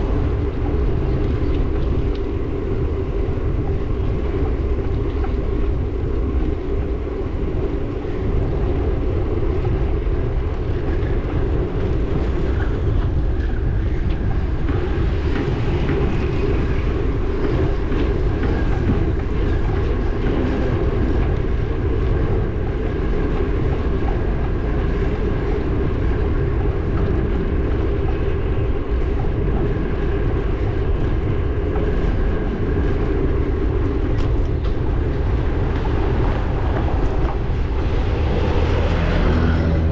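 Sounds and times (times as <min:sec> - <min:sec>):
wind on microphone: 0:00.0 - 0:39.9
low vehicle rumble: 0:30.6 - 0:39.9.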